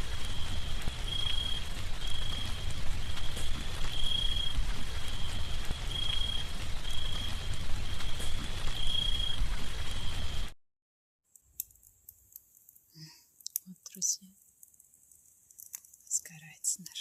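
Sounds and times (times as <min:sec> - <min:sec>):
wind rumble on microphone: 0:00.0 - 0:10.5
bonfire hissing and crackling: 0:00.0 - 0:10.6, 0:11.6 - 0:17.0.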